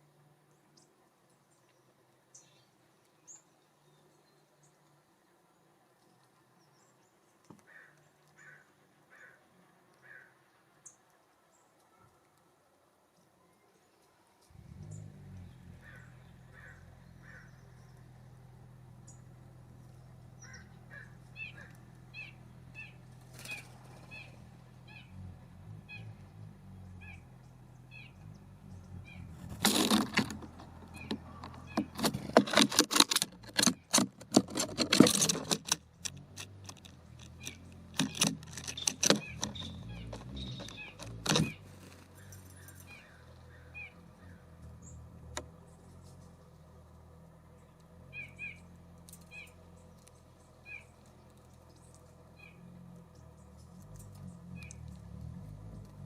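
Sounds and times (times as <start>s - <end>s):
songbird high chirps: 0.4s - 9.4s, 14.8s - 25.2s, 25.8s - 29.4s, 37.3s - 46.7s, 47.5s - 55.0s
birds pecking and scrabbling on wood: 19.7s - 24.4s, 29.1s - 48.1s, 48.8s - 56.0s.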